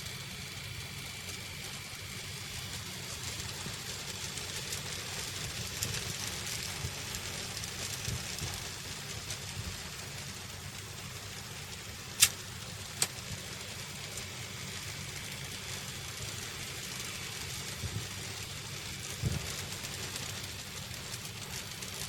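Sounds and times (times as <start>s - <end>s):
model trains rumbling: 0.0s - 22.0s
sharp clicks: 12.2s - 12.4s.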